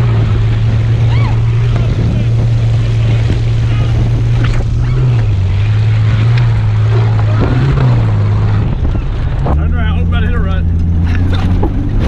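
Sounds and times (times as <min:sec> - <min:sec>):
low rumble: 0:00.0 - 0:12.0
vehicle engine droning: 0:00.0 - 0:12.0
wind noise: 0:00.0 - 0:12.0.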